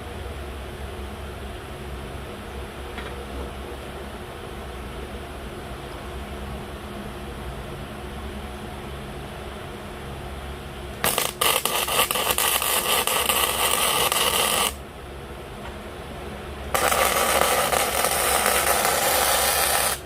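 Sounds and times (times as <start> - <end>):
steady low hum: 0.0 - 20.0
arc welding crackling hiss: 11.0 - 14.8, 16.7 - 20.0.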